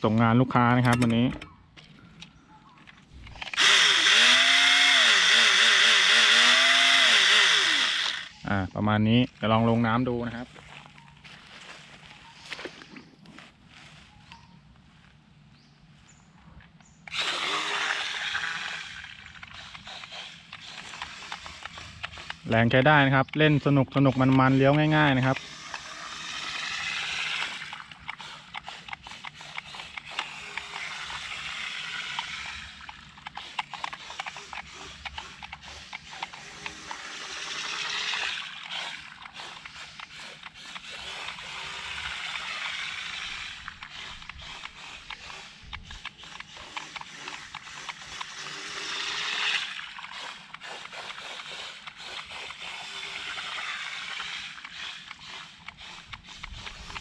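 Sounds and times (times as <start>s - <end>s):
toy boat motor hissing: 3.2s - 8.7s, 17.1s - 57.0s.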